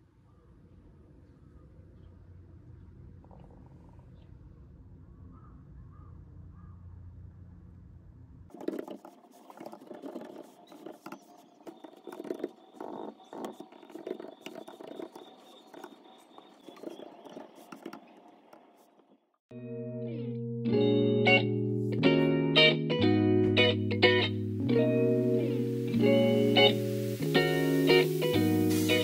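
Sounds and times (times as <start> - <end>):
laptop keyboard typing: 8.5 - 19.0.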